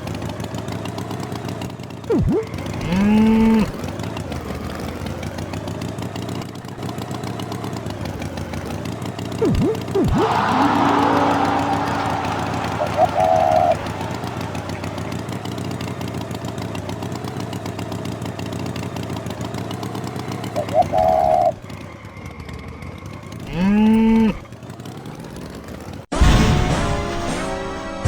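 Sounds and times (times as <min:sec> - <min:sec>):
engine running with pulsing: 0:00.0 - 0:26.1
cow mooing: 0:09.4 - 0:14.3
music: 0:26.1 - 0:28.0.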